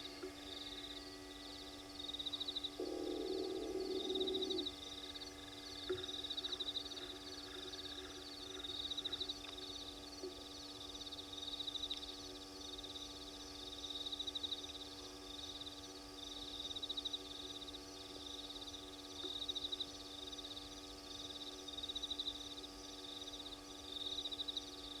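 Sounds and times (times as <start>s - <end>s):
steady hum: 0.0s - 25.0s
animal giving pulsed trills: 2.6s - 10.4s.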